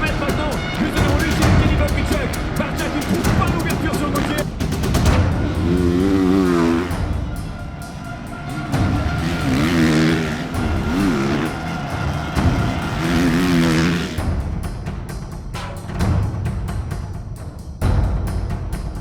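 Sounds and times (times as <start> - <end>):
motocross bike engines revving: 0.0 - 14.4
background music: 0.0 - 19.0.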